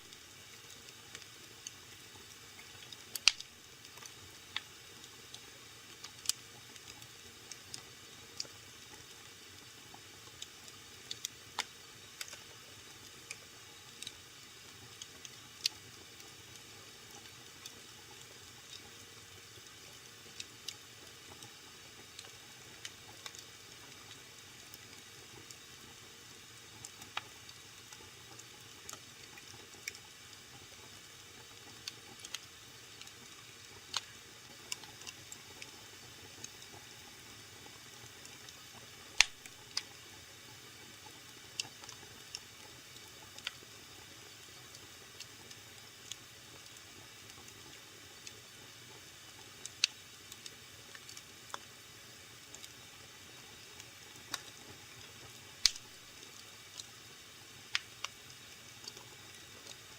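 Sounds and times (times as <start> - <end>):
wood fire crackling and popping: 0.0 - 57.0, 57.6 - 59.9.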